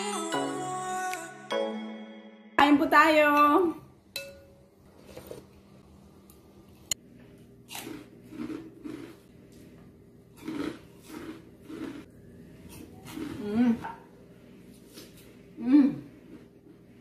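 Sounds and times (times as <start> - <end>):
chips being bitten and chewed: 7.7 - 9.2, 10.3 - 12.1.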